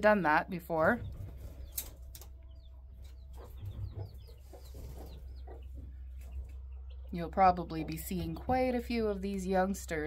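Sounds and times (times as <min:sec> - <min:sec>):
steady low hum: 0:00.0 - 0:10.0
faint bird clucks and chirps: 0:01.0 - 0:07.2.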